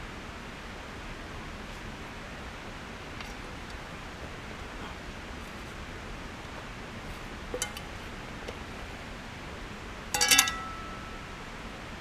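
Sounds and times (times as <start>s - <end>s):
steady hiss: 0.0s - 12.0s
metal pots and lids clinking: 7.6s - 7.9s, 10.1s - 11.2s
ringing tone: 10.2s - 11.4s.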